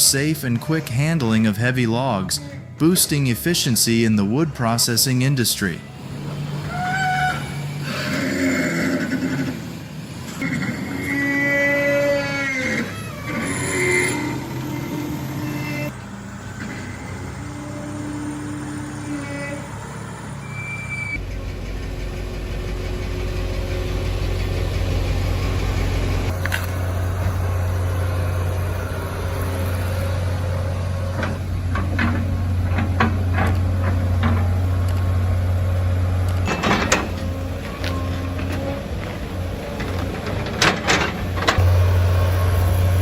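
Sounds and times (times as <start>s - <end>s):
heavy machine engine running: 5.7s - 12.4s, 13.0s - 43.0s
knocks and clanks: 31.1s - 35.4s, 36.2s - 42.0s.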